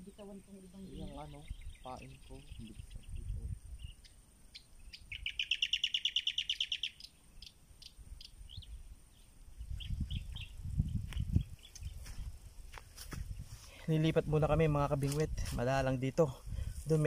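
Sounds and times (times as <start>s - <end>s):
bird chirps: 0.0s - 12.2s
bird trilling: 0.7s - 10.6s.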